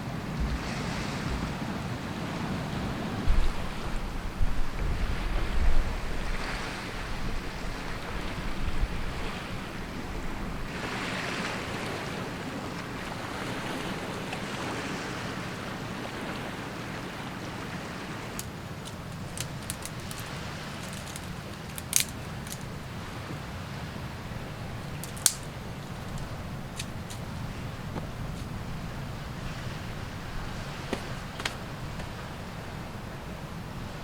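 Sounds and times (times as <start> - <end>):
wind buffeting microphone: 0.0 - 14.8
surf washing on a beach: 0.0 - 34.0.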